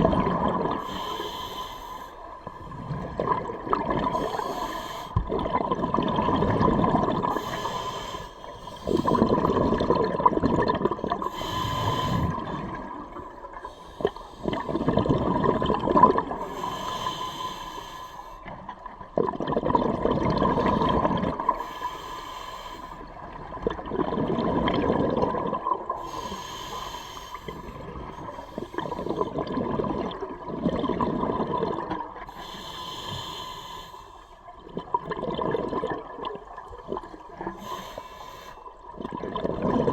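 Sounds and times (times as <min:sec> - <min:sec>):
gurgling exhaled bubbles: 0:00.0 - 0:01.5, 0:02.2 - 0:08.0, 0:08.6 - 0:17.2, 0:18.4 - 0:21.7, 0:23.0 - 0:26.4, 0:27.4 - 0:32.4, 0:34.4 - 0:37.9, 0:38.7 - 0:39.9
regulator inhalation hiss: 0:04.2 - 0:05.2, 0:07.4 - 0:09.1, 0:11.3 - 0:12.4, 0:16.4 - 0:18.4, 0:21.6 - 0:23.0, 0:26.1 - 0:27.7, 0:32.3 - 0:34.4, 0:37.6 - 0:38.6.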